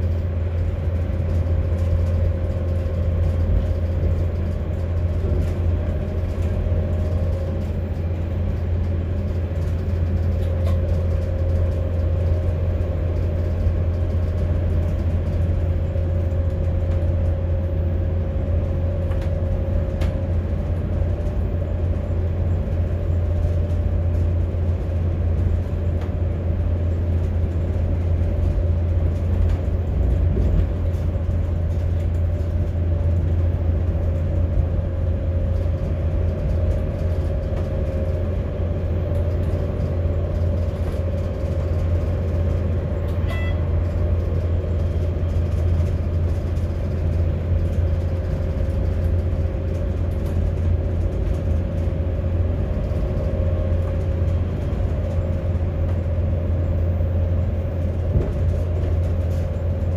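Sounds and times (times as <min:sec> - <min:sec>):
constant hum: 0:00.0 - 0:59.9
train engine and wheels rumbling: 0:00.0 - 0:59.9
brief beep: 0:43.2 - 0:43.7.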